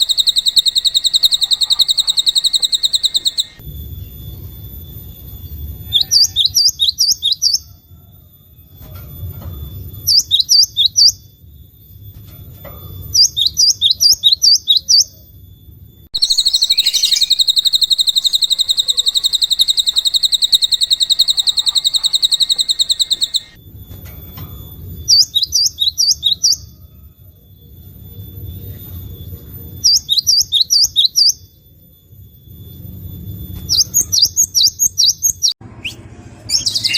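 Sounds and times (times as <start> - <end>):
fast high bird trill: 0.0 - 3.6, 16.1 - 23.6, 33.7 - 36.9
songbird chip notes: 0.0 - 4.5, 16.2 - 23.6.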